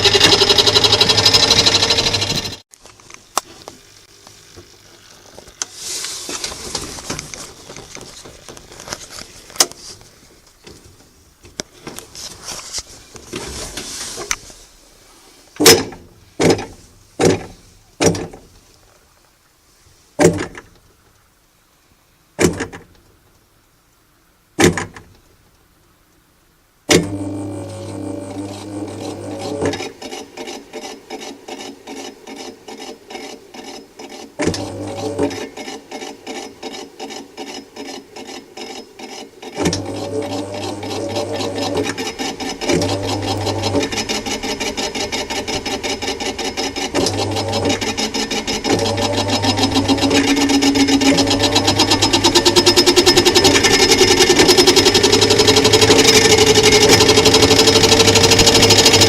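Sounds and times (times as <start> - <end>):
fast rasping rattle: 0.0 - 2.6, 40.3 - 59.0
washing machine motor hum: 0.0 - 2.6, 27.0 - 29.7, 34.4 - 35.4, 39.6 - 59.0.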